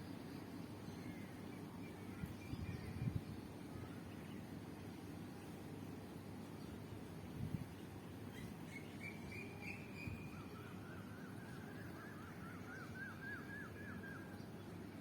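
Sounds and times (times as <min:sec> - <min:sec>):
bird whistling and chirping: 0:08.3 - 0:14.4.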